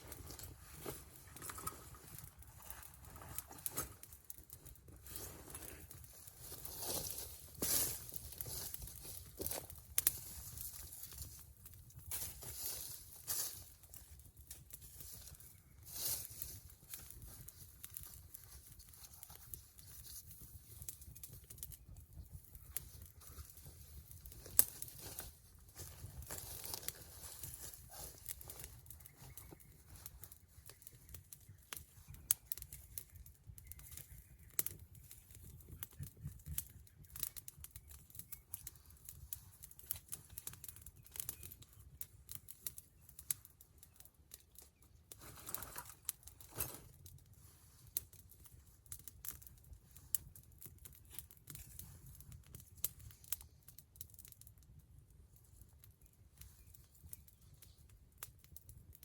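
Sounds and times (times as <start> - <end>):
fire snapping and popping: 0.0 - 59.0
wood fire crackling: 0.0 - 59.0.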